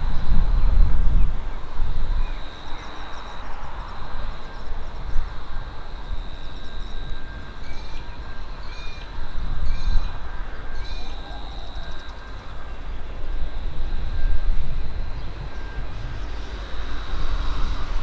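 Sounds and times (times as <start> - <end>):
steady high whine: 0.0 - 18.0
train rumbling past: 9.7 - 18.0.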